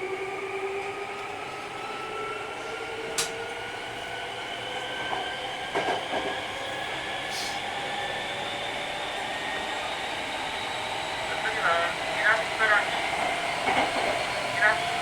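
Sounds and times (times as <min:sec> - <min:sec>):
train running gear rumble: 0:02.7 - 0:10.0, 0:10.8 - 0:15.0.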